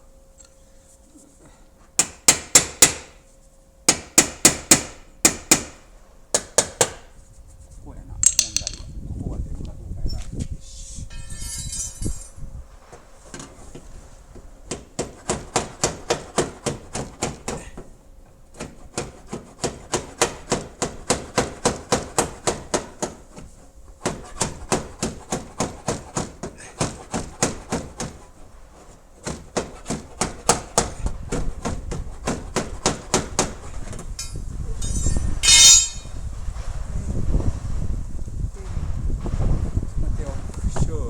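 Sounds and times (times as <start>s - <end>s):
hammer tapping on metal panel: 2.0s - 3.2s, 3.9s - 7.1s, 14.7s - 17.9s, 18.5s - 23.2s, 24.0s - 28.2s, 29.2s - 34.0s.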